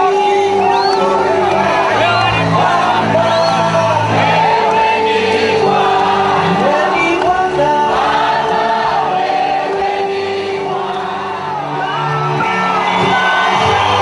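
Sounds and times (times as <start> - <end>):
crowd singing worship music: 0.0 - 14.0
people shouting: 10.8 - 14.0.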